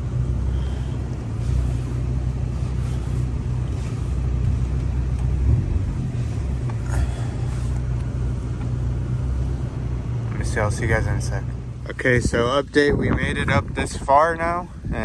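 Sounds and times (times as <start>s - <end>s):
car engine humming: 0.0s - 15.0s.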